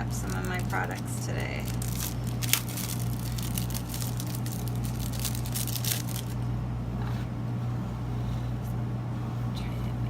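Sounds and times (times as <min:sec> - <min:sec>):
plastic packaging crinkling and tearing: 0:00.0 - 0:06.4
steady low hum: 0:00.0 - 0:10.0.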